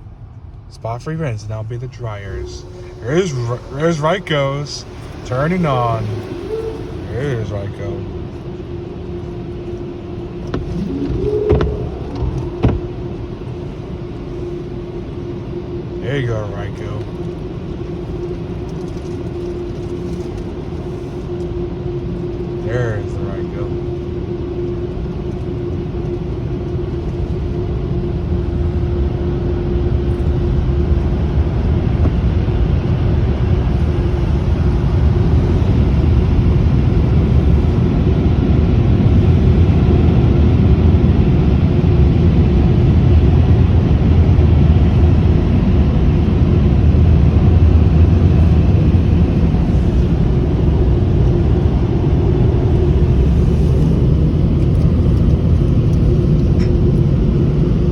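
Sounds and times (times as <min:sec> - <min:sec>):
car wash dryer blowers: 0:00.0 - 0:24.3, 0:26.6 - 0:57.9.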